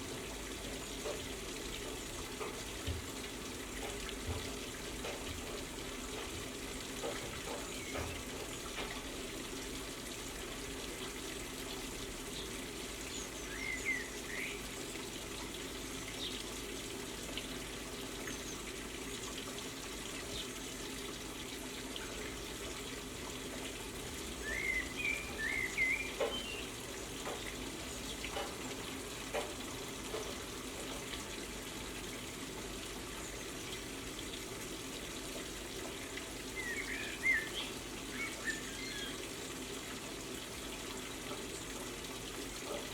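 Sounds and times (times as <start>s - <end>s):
small birds chirping: 12.3s - 14.6s, 24.4s - 27.0s, 36.5s - 39.2s.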